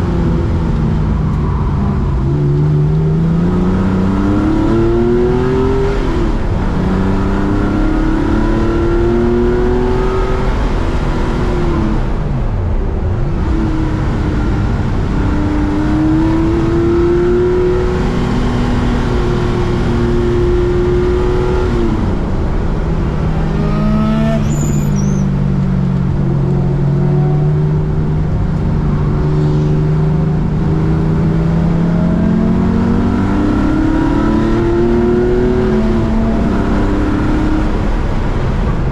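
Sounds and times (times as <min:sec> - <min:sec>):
race car engine revving: 0:13.4 - 0:38.4.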